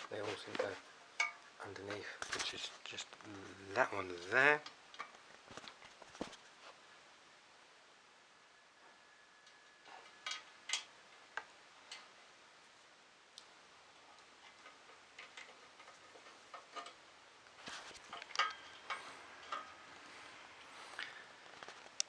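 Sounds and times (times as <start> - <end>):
small parts clicking and tapping: 9.4 - 12.2, 14.1 - 19.9.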